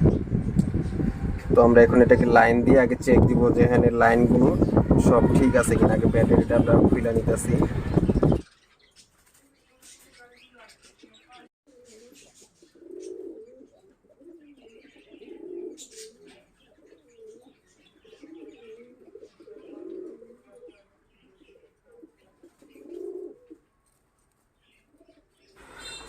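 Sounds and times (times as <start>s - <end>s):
pigeons cooing: 9.7s - 23.7s, 24.7s - 26.0s.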